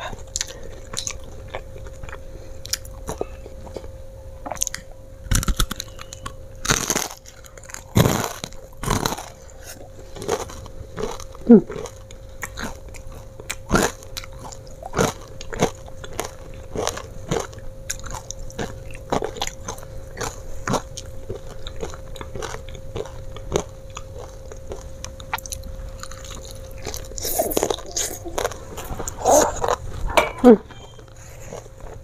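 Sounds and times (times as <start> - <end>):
chewing crispy fried chicken: 0.0 - 30.1, 30.9 - 32.0
wet mouth sounds: 25.3 - 29.8.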